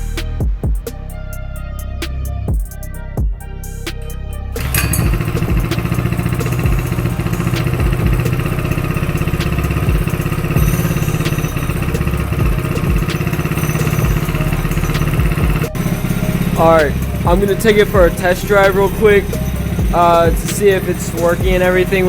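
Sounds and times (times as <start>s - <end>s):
small engine idling: 4.6s - 22.0s.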